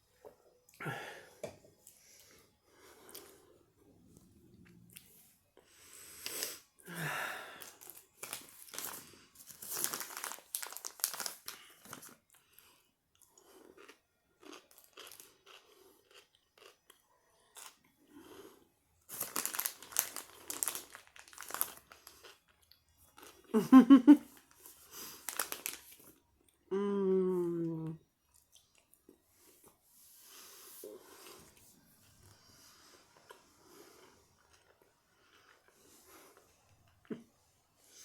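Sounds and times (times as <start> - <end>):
person humming mm: 26.7 - 28.0.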